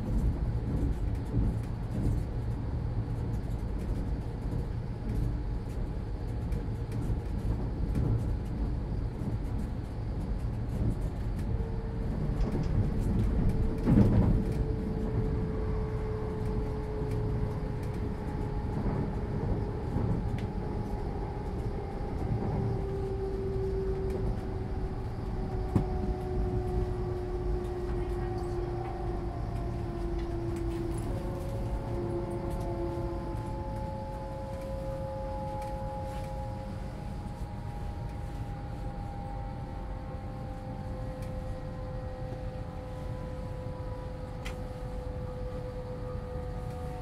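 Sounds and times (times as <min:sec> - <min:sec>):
train interior low rumble: 0:00.0 - 0:47.0
traction motor whine: 0:14.4 - 0:47.0.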